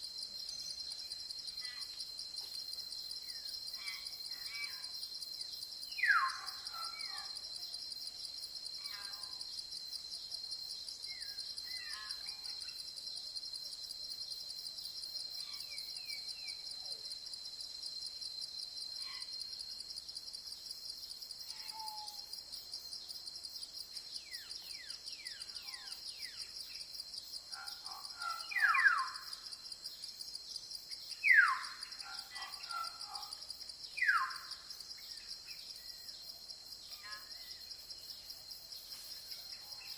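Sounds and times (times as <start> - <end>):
insects pulsing chorus: 23.8 - 39.9.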